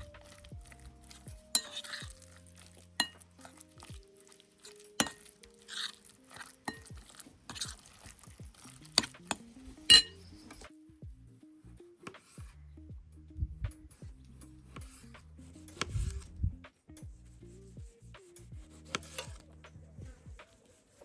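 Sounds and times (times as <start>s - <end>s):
soft background music: 0.0s - 21.0s
utensil clinking against glass bowl: 3.0s - 3.6s, 5.0s - 5.9s, 9.9s - 10.2s.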